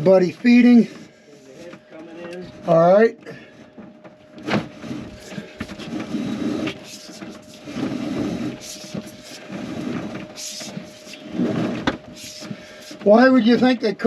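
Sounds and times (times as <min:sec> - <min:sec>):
cable rubbing and scraping: 0:04.4 - 0:13.8.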